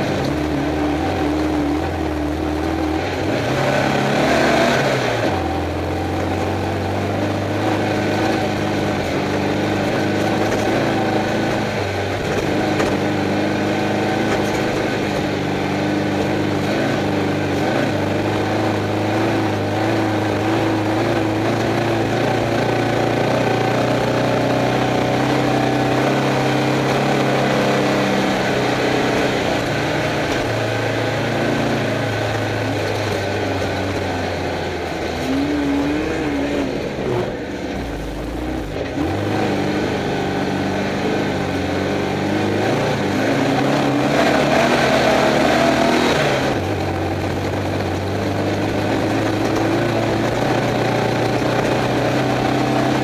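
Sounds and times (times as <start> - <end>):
car engine running hard: 0.0 - 53.0
car rattling over rough ground: 0.0 - 53.0.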